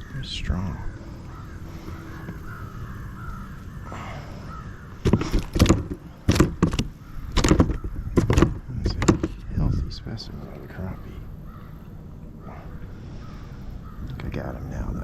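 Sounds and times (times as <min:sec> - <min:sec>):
fish thrashing and splashing: 0:04.3 - 0:09.4
knocks: 0:05.0 - 0:09.4.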